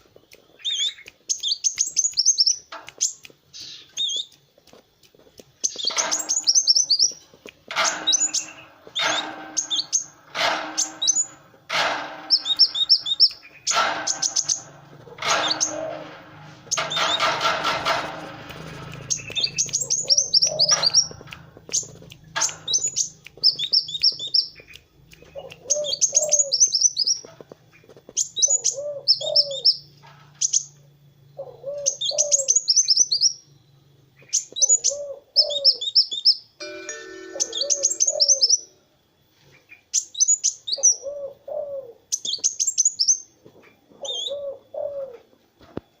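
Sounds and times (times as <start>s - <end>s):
bird twittering trills: 0.2s - 4.4s, 5.6s - 30.8s, 31.4s - 38.8s
low cooing notes: 7.7s - 23.3s, 36.6s - 38.8s.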